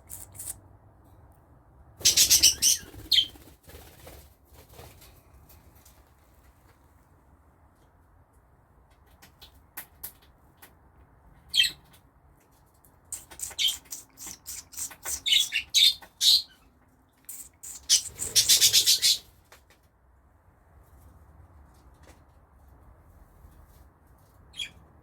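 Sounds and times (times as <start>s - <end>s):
budgerigars chirping and squawking: 2.0s - 3.4s, 13.2s - 16.6s, 17.3s - 19.3s.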